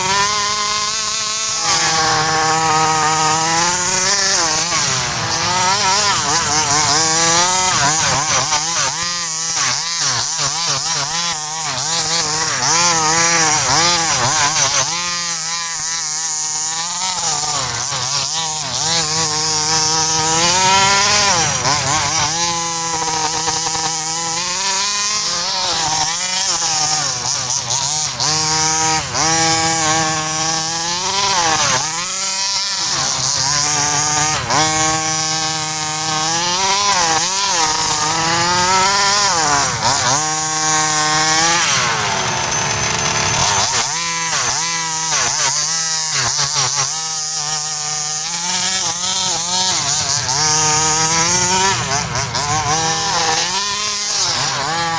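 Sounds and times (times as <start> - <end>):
two-stroke engine buzzing: 0.0 - 54.9.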